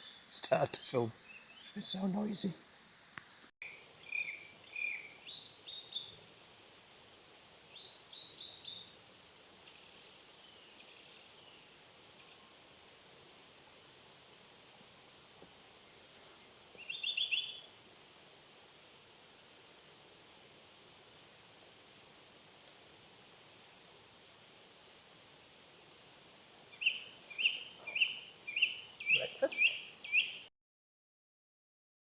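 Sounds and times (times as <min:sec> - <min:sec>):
birds chirping: 0:00.0 - 0:02.5, 0:03.6 - 0:06.2, 0:16.8 - 0:18.7, 0:26.7 - 0:30.5
steady background hiss: 0:00.0 - 0:30.5.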